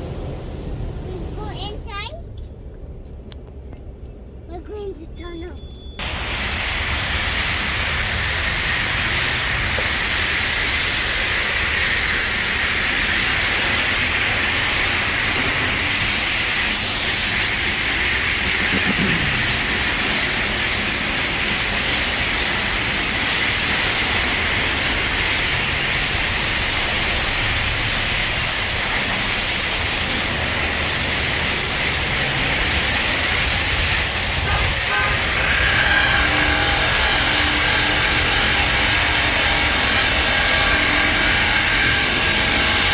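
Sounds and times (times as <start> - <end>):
low rumble: 0.0 - 4.5
high-pressure water spray hissing: 6.0 - 42.9.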